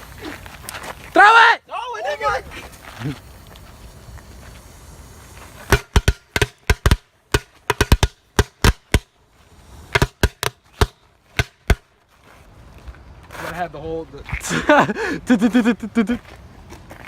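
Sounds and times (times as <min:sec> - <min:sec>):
firecrackers banging: 0:02.0 - 0:12.0.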